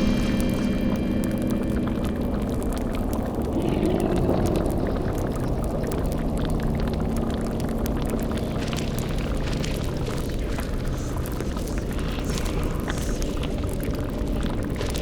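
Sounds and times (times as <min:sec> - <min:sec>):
whoosh: 0:00.0 - 0:03.4
low drone tone: 0:00.0 - 0:07.9
low rumble: 0:00.0 - 0:08.1
fire-like crackling: 0:00.0 - 0:15.0.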